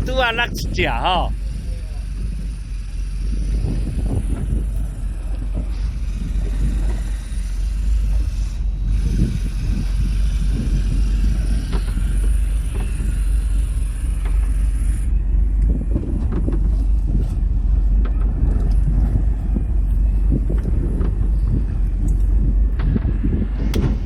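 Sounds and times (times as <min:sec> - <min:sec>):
boat engine rumble: 0:00.0 - 0:24.0
wind buffeting microphone: 0:03.3 - 0:13.6, 0:15.2 - 0:24.0.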